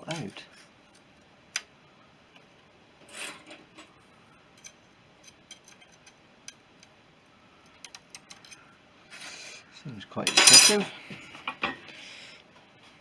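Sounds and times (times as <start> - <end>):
light ticks and taps of metal parts: 4.6 - 7.0.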